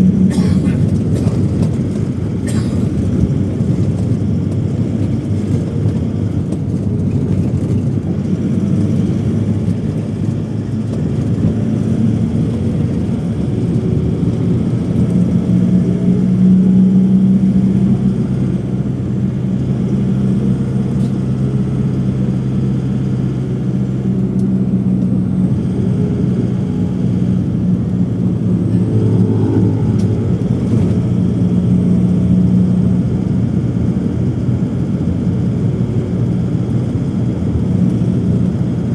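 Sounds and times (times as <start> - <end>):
vehicle engine hum: 0.0 - 38.9
held low tones: 23.6 - 33.1.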